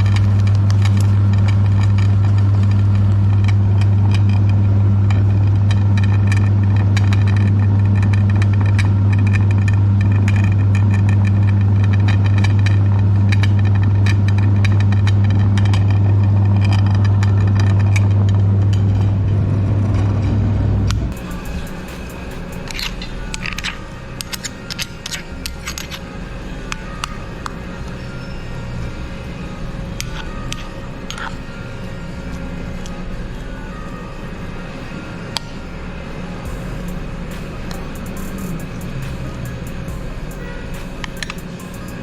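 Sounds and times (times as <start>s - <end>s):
clicks and crackles from grinding: 0.0s - 19.1s, 20.9s - 26.1s, 30.0s - 31.4s.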